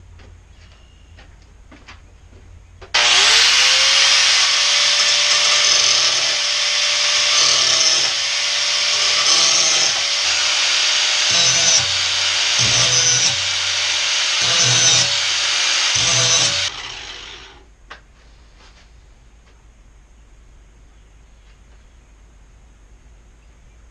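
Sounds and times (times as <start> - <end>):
power grinder grinding steel: 3.0 - 17.6.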